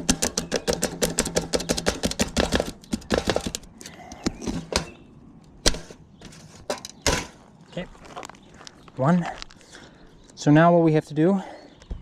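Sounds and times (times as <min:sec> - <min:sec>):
hand tool scraping metal: 0:00.0 - 0:05.0, 0:05.7 - 0:07.4.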